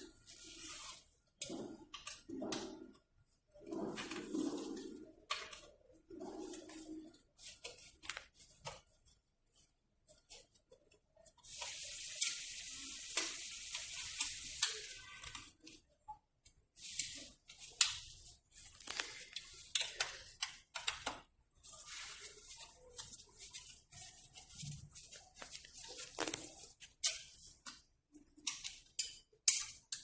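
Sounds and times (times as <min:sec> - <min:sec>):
rustling scratchy noise: 0:16.8 - 0:20.4, 0:21.5 - 0:27.6.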